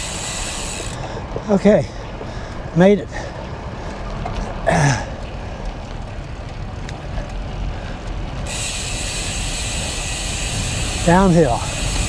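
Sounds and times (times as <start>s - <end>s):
steady high hiss: 0.0s - 1.0s, 8.5s - 12.0s
bicycle road noise: 0.0s - 12.0s
wind noise: 0.0s - 12.0s.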